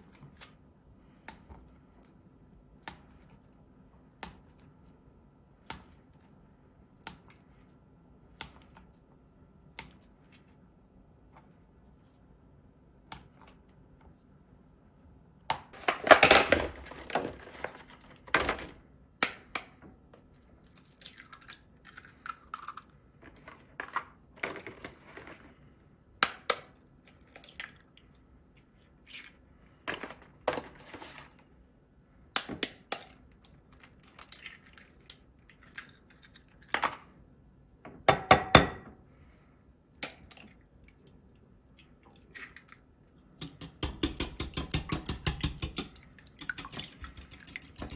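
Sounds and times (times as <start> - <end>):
rustling and scraping: 16.6 - 18.3, 29.9 - 31.5.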